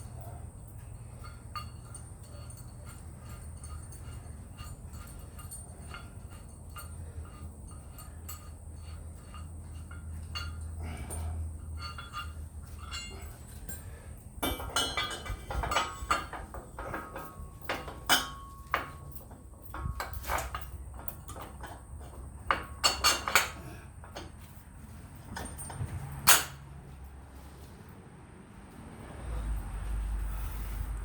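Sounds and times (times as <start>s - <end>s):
low steady hum: 0.0s - 27.6s
metal parts clanking: 1.1s - 24.4s, 25.2s - 26.6s.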